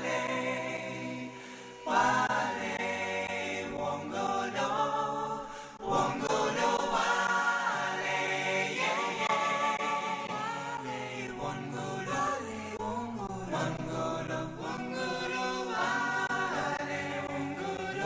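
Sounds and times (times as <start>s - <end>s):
voices singing: 0.0s - 18.0s.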